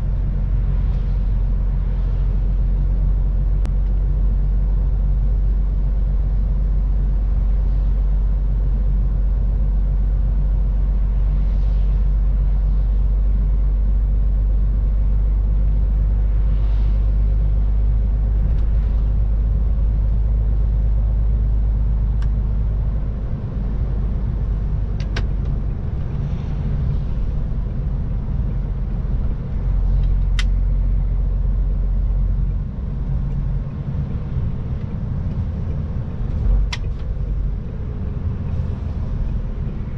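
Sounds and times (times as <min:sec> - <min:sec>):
truck diesel engine droning: 0:00.0 - 0:39.9.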